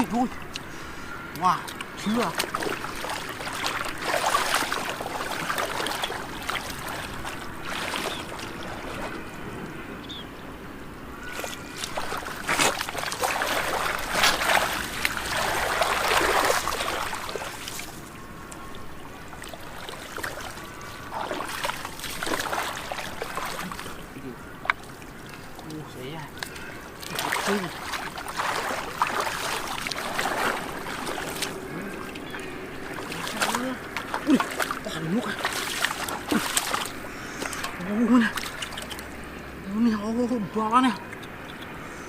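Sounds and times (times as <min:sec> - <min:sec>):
muddy water splashing: 0:00.0 - 0:09.8, 0:11.2 - 0:41.9.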